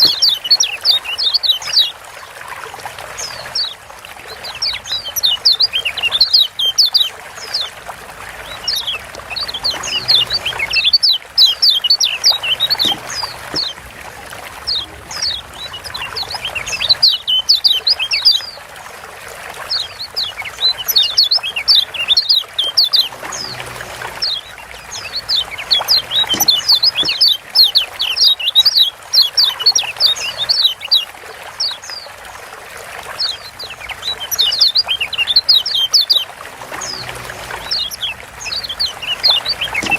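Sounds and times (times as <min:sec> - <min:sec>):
bird chirping: 0:00.0 - 0:01.9, 0:03.2 - 0:07.8, 0:08.4 - 0:13.9, 0:14.6 - 0:18.6, 0:19.7 - 0:32.0, 0:33.2 - 0:39.9.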